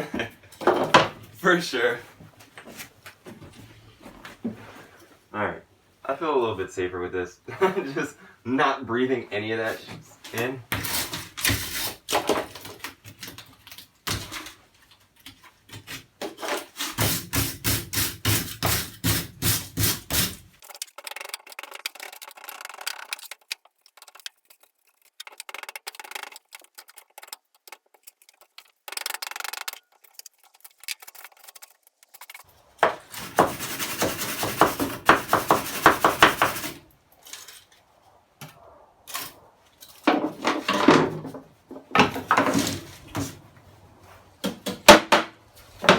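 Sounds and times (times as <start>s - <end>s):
hand scraping dry wood: 15.0s - 38.2s.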